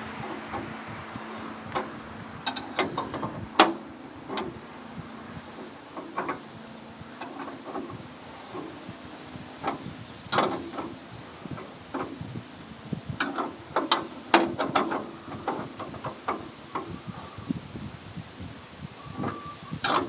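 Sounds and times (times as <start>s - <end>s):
wrench clicking and knocking on metal: 13.2s - 16.9s.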